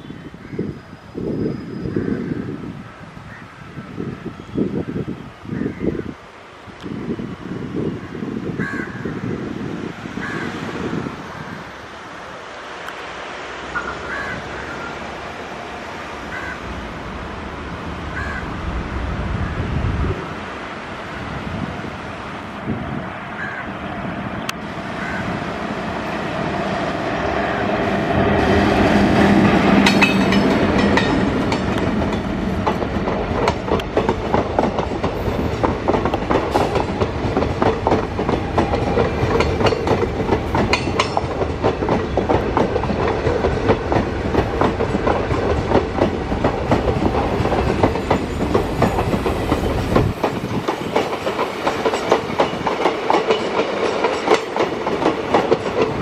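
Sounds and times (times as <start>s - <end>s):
electric locomotive passing: 0.0s - 56.0s
train wheels clickety-clack: 28.5s - 56.0s.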